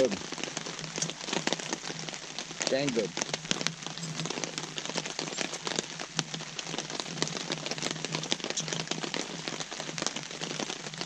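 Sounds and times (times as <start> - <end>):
rain drops on a nylon tarp: 0.0 - 11.0.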